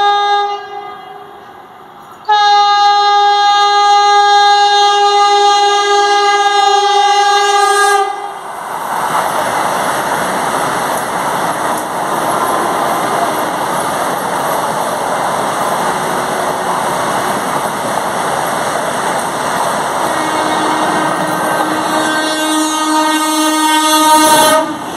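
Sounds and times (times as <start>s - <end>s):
train horn: 0.0s - 1.6s, 2.2s - 8.4s, 20.0s - 24.9s
train passing at speed: 0.0s - 24.9s.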